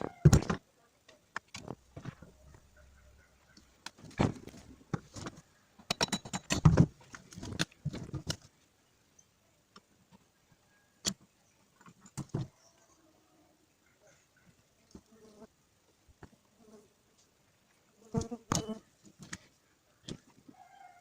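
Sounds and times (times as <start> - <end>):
metal parts and tools clicking: 5.8 - 8.4.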